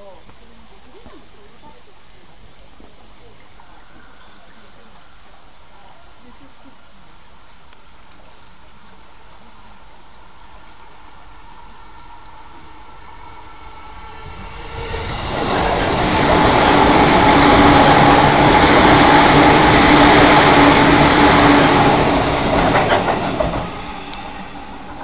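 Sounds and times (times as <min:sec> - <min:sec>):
electric train rumbling over bridge: 0:08.5 - 0:25.0.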